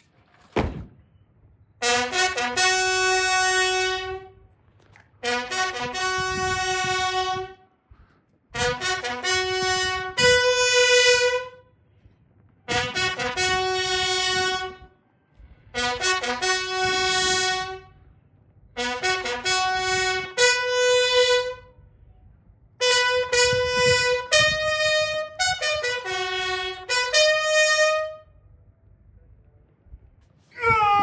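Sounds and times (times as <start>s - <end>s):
bugle call: 1.8s - 4.4s, 8.6s - 11.6s, 15.7s - 17.9s, 22.8s - 28.3s.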